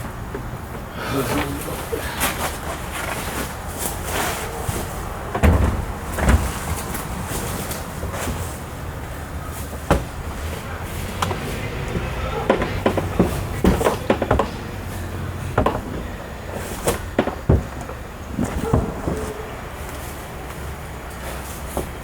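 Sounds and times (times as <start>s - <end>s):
tools knocking on car door: 11.2s - 14.8s, 15.5s - 16.1s.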